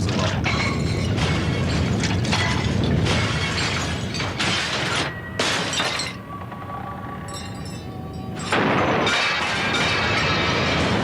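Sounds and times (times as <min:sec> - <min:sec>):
glass breaking: 0:00.4 - 0:06.2, 0:08.4 - 0:11.0.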